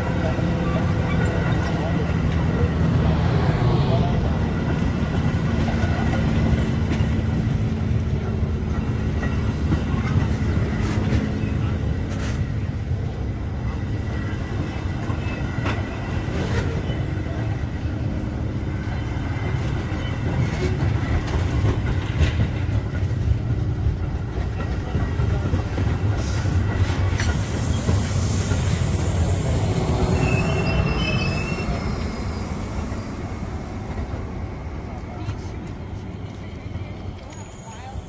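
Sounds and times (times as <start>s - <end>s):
train wheels rumbling on rail: 0.0s - 38.0s
train wheel squeal: 0.6s - 2.7s, 13.7s - 18.0s, 18.7s - 22.2s, 26.2s - 33.5s, 36.3s - 38.0s.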